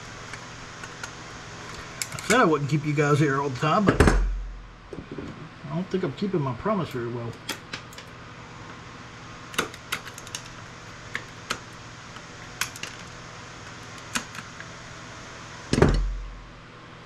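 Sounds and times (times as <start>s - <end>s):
steady low hum: 0.0s - 17.0s
heavy thud with deep boom: 3.9s - 4.8s.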